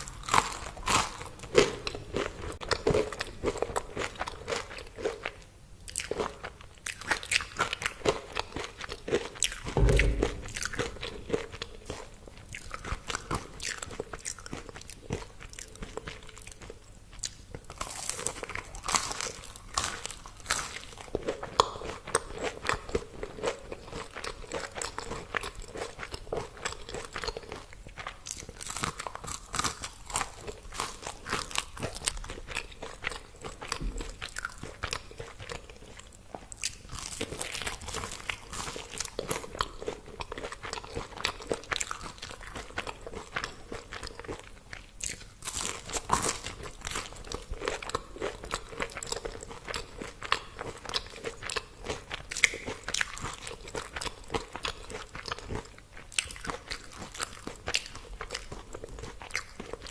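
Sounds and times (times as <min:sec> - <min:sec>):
crunching crispy food: 0:00.0 - 0:59.9
dull thump: 0:09.8 - 0:11.2.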